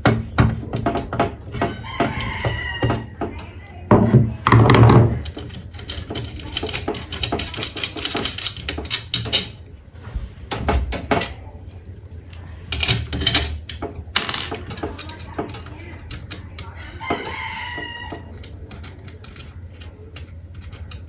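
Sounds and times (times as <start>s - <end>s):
sharp clicks and knocks: 0.0s - 9.6s.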